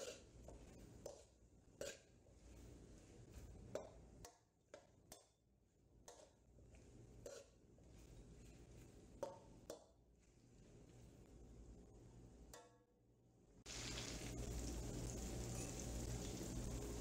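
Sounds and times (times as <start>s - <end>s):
metal spoon scraping metal pan: 0.0s - 4.0s, 7.2s - 9.4s.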